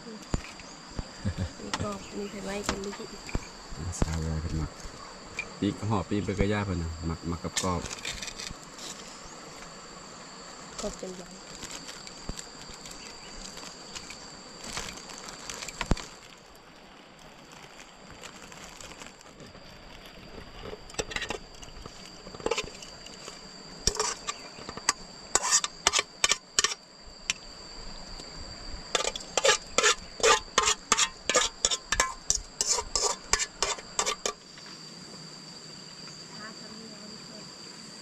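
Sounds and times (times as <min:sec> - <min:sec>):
high drone of insects: 0:00.0 - 0:38.0.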